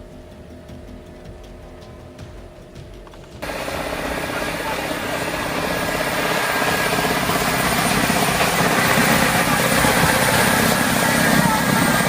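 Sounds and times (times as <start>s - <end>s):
large engine pulsing: 0.0s - 12.0s.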